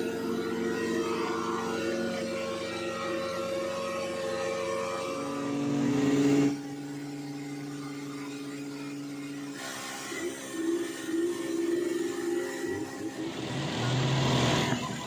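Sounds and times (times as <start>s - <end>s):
fire pump engine revving: 13.3s - 15.0s.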